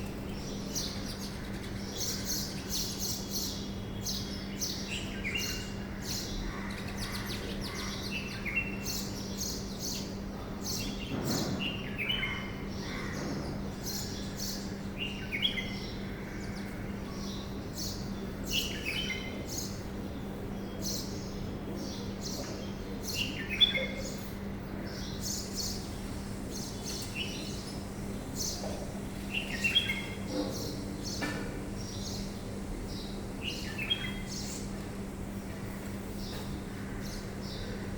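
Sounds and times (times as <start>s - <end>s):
birds chirping: 0.0s - 37.9s
steady low hum: 11.6s - 37.9s.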